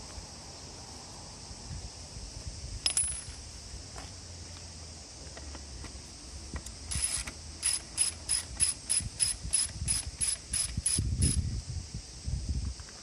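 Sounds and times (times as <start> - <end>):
ratchet wrench clicking: 6.6 - 11.4.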